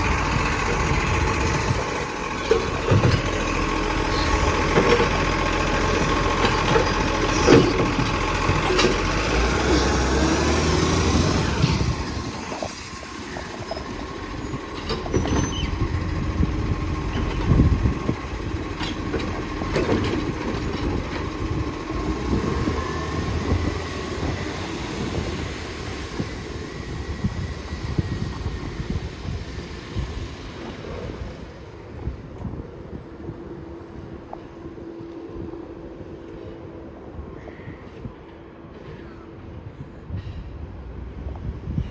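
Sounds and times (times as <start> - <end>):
garbage truck engine running: 0.0 - 34.2
knocks and clatter: 2.4 - 3.6, 4.4 - 9.8, 17.0 - 21.4.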